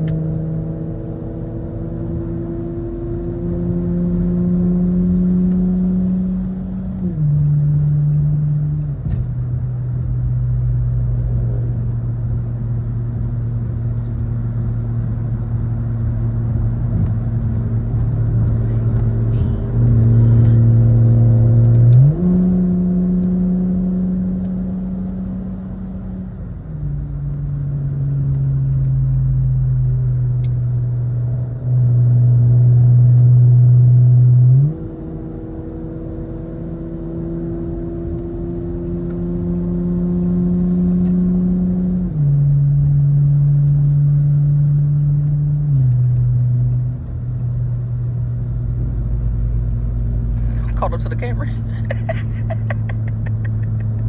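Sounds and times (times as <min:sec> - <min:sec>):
car engine and exhaust drone: 0:00.0 - 0:54.0.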